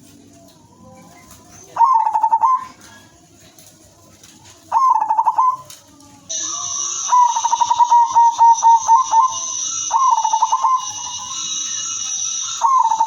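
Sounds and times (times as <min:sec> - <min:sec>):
dove cooing: 0:01.2 - 0:03.1, 0:04.6 - 0:05.7, 0:07.1 - 0:11.4, 0:12.6 - 0:13.0.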